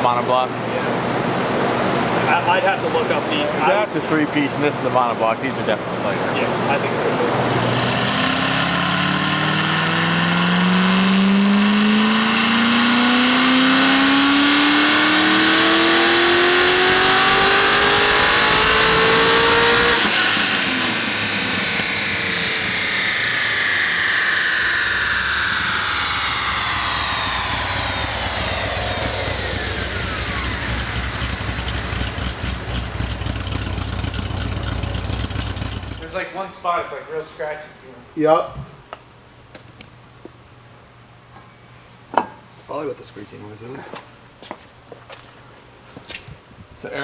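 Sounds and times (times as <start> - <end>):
drivetrain and rollers whining: 6.4 - 36.2
car engine full-throttle pull: 6.8 - 36.2.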